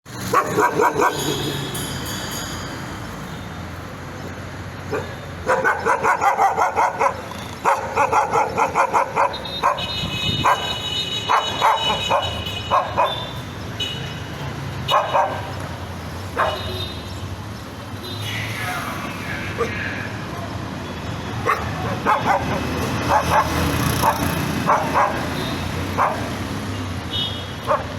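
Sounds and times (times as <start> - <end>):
dog barking and yipping: 0.2 - 1.6, 4.9 - 13.4, 14.8 - 15.6, 16.3 - 16.7, 21.4 - 26.5, 27.6 - 27.9.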